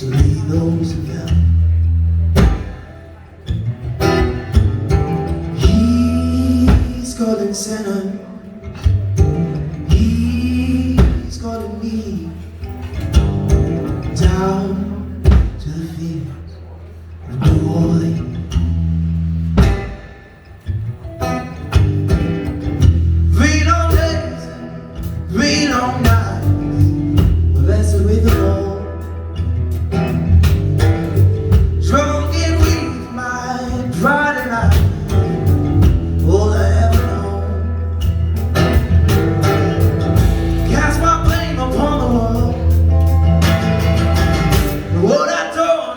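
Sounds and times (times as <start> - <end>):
bass line: 0.0 - 7.4, 8.8 - 12.1, 17.3 - 20.0, 20.8 - 45.1
live band playing slow song: 0.0 - 16.1, 16.8 - 45.6
drum and cymbal accents: 38.0 - 41.6.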